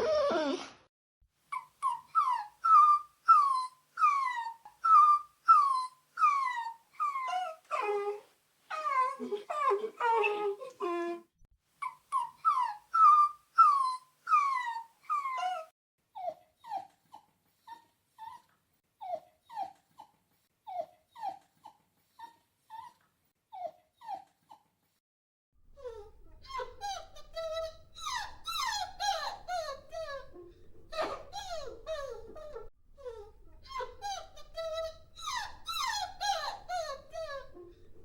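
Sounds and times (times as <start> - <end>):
puppies whining: 1.6 - 11.2, 11.8 - 17.0, 25.8 - 38.0.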